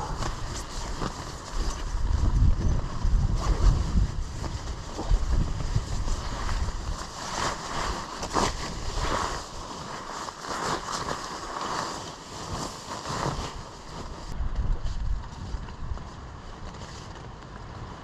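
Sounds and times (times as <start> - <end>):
wind buffeting microphone: 0.0 - 9.6, 14.0 - 16.8.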